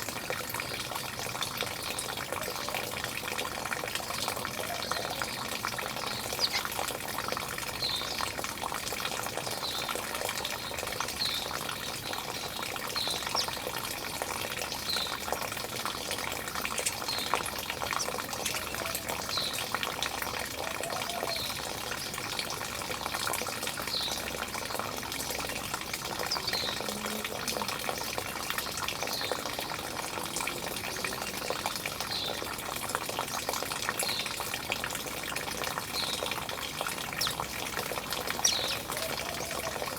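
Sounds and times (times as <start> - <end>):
running water splashing: 0.0 - 39.9
bird chirping: 4.6 - 6.9, 10.7 - 13.8, 16.6 - 19.8, 36.0 - 37.5, 38.1 - 39.9.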